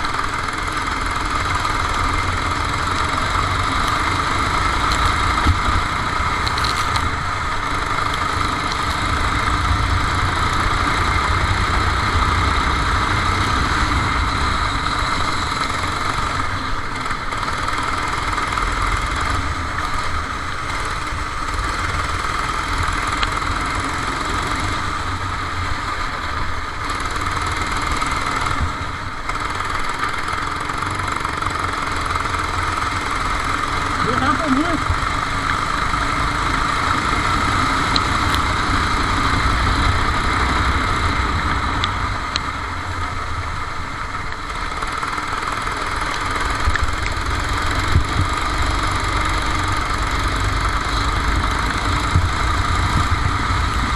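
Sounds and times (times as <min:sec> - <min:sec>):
kart engine running: 0:00.0 - 0:53.9.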